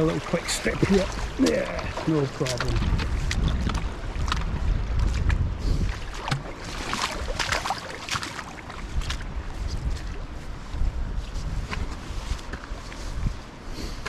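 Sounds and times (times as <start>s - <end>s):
splashing footsteps in water: 0.0s - 10.6s
wind rumbling on microphone: 0.0s - 14.0s.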